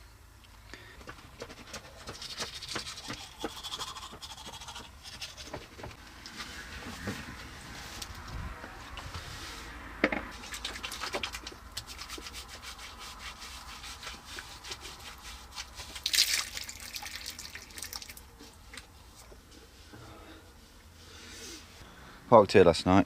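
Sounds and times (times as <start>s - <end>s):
scraping and rubbing: 1.4s - 16.1s.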